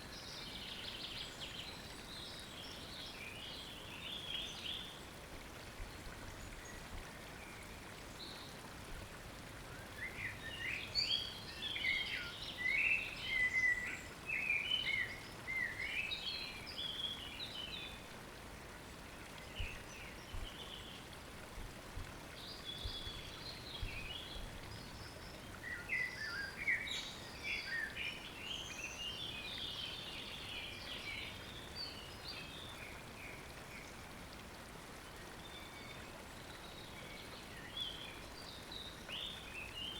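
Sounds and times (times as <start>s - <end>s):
running water from stream: 0.0s - 39.9s.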